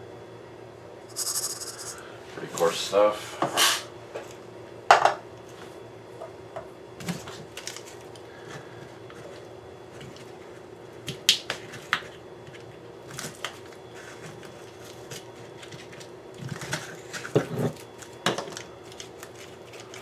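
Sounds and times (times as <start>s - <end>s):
steady low hum: 0.9s - 4.1s.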